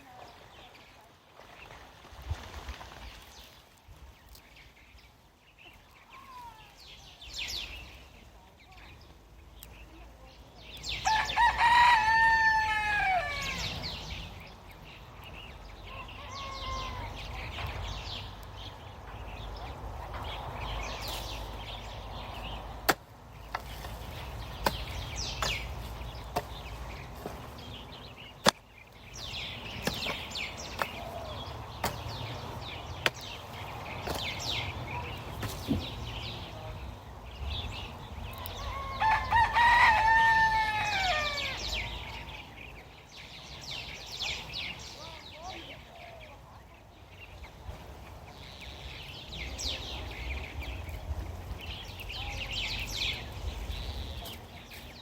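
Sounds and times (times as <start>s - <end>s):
rooster crowing: 11.0s - 13.7s, 15.9s - 17.2s, 38.6s - 41.8s.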